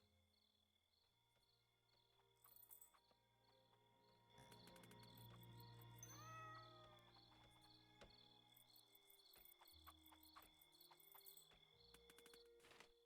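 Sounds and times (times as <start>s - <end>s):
cat meowing: 6.1s - 7.1s.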